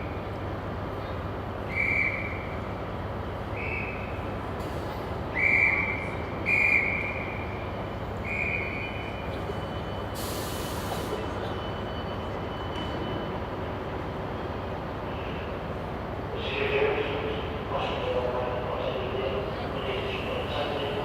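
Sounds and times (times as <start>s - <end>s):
shrill whistle blasts: 1.7s - 2.5s, 5.3s - 7.3s, 8.2s - 9.2s.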